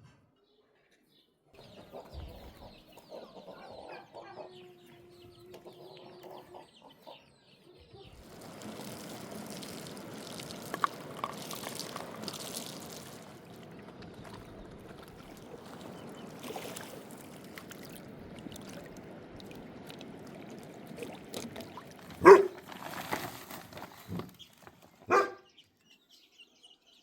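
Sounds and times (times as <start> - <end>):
chickens clucking: 1.6 - 16.4.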